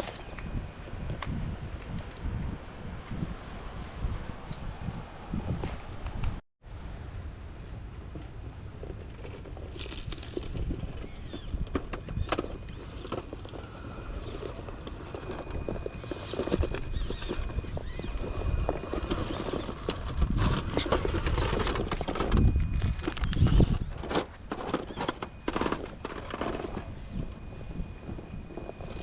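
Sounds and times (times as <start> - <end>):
rc truck clattering over rough ground: 8.1 - 29.0
high wavering squeaky chirps: 11.0 - 19.8, 20.8 - 24.0.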